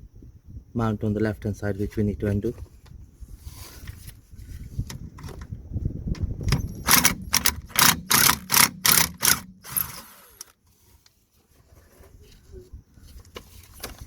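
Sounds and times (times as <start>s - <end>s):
handling clatter: 6.2s - 12.4s
impact wrench hammering: 6.8s - 10.1s.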